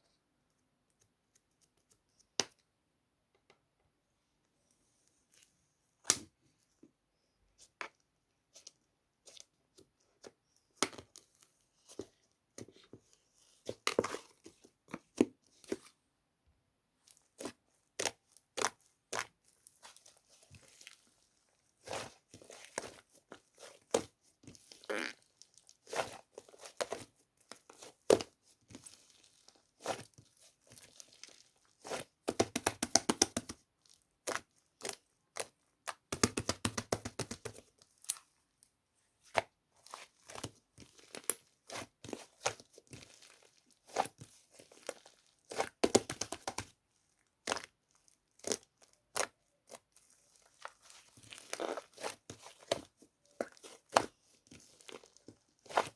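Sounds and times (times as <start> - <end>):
rapid crackling of slime: 17.1 - 38.5, 39.2 - 55.9.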